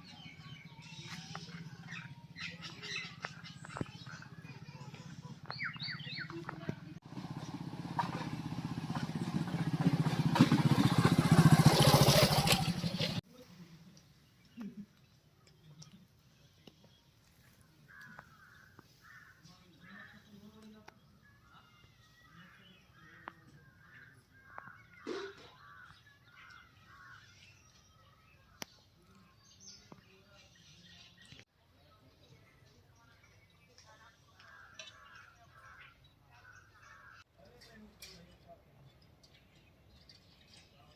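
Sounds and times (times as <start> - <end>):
birds calling: 0.0 - 13.2, 14.2 - 31.5, 32.2 - 37.3
engine running with fast beat: 6.4 - 13.2
crows cawing: 17.9 - 20.2, 21.6 - 27.4, 34.4 - 37.3.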